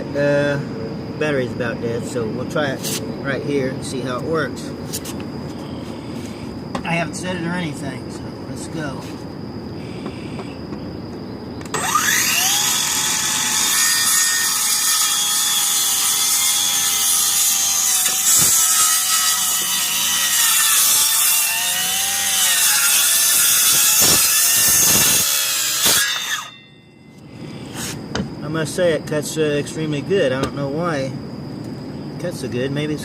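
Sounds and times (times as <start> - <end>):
circular saw cutting boards: 11.7 - 26.7.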